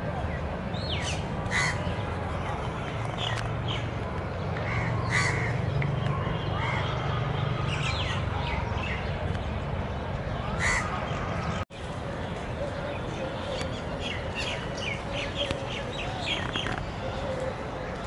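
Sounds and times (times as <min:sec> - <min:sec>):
birds harsh calls: 0:00.8 - 0:09.1, 0:10.5 - 0:11.6.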